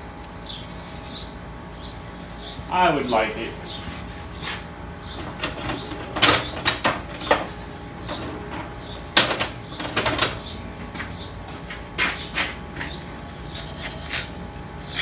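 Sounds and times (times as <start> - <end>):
metal tools clicking and knocking: 5.1 - 10.6.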